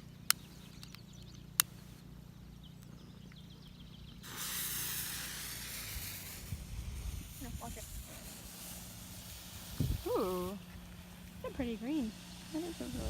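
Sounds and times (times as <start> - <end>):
firework fountain hissing: 4.2 - 13.0.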